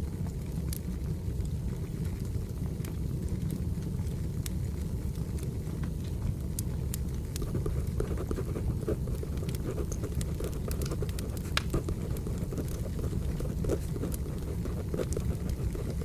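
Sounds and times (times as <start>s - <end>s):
firewood crackling and popping: 0.0s - 16.0s.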